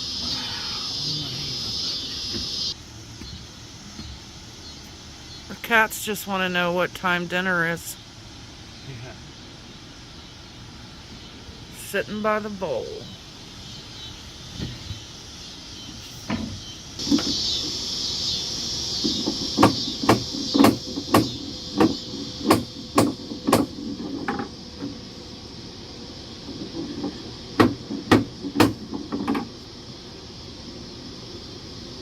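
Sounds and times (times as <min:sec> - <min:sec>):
hammer knocking on wooden boards: 0:19.0 - 0:25.0, 0:26.5 - 0:29.5.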